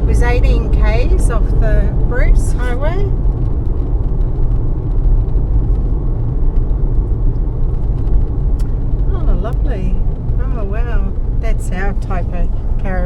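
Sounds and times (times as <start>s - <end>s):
car cabin road and engine noise: 0.0s - 13.0s.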